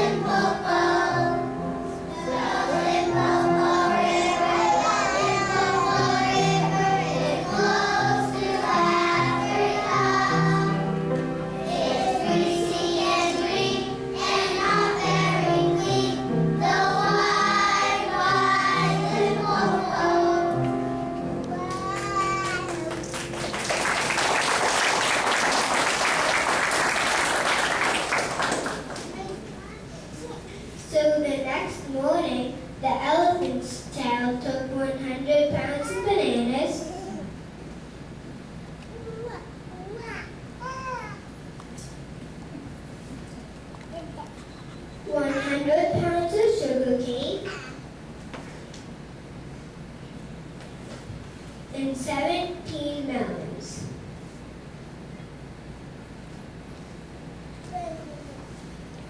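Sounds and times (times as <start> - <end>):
children singing: 0.0 - 1.5, 2.1 - 20.7
audience applauding: 21.7 - 29.4.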